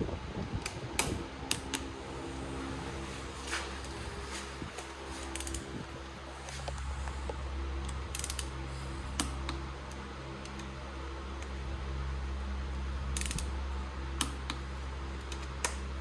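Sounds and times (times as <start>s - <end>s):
steady mechanical hum: 0.0s - 16.0s
metallic clicks of hand tools: 13.2s - 13.5s.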